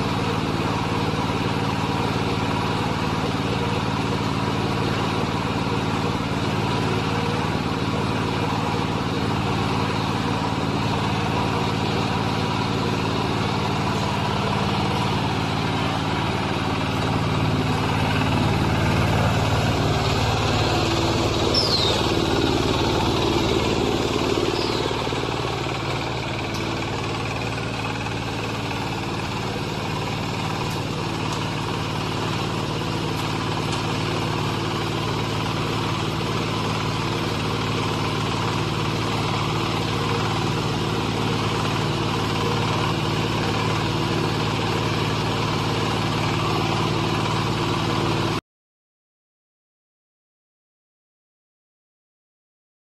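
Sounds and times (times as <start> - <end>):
baler machine humming: 0.0 - 48.3
brief falling squeaks: 21.5 - 22.1.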